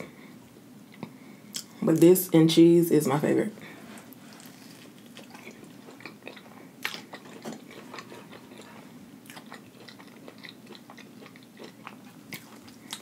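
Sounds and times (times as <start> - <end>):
crunchy chewing: 4.0 - 13.0.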